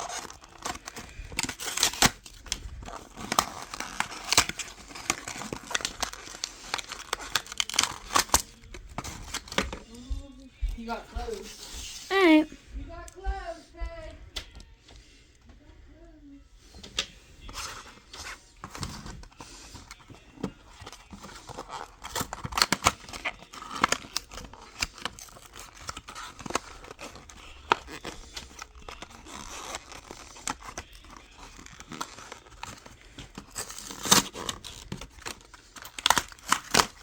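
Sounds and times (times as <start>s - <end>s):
packaging tearing and crinkling: 0.0s - 9.9s, 17.4s - 37.0s.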